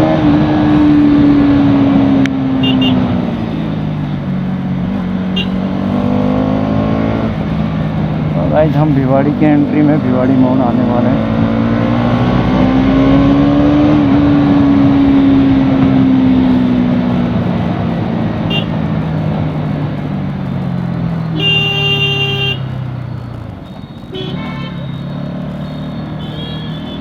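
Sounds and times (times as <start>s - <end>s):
vehicle horn: 2.6s - 3.2s, 5.3s - 5.7s, 18.5s - 18.8s, 21.3s - 22.7s, 24.1s - 27.0s.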